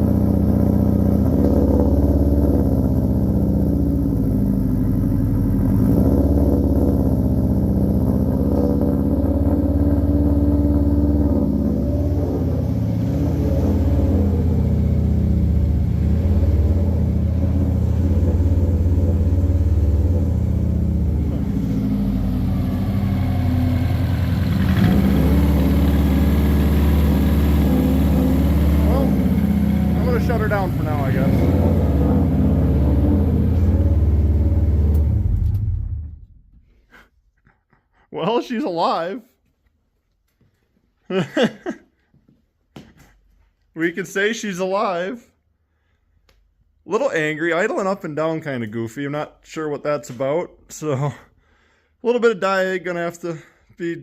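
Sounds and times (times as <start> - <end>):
rough engine idling: 0.0 - 36.3.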